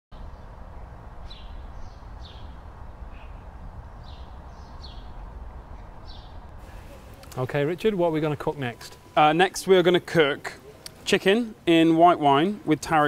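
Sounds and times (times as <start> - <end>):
low background rumble: 0.2 - 7.2
small bird chirping: 1.2 - 6.4.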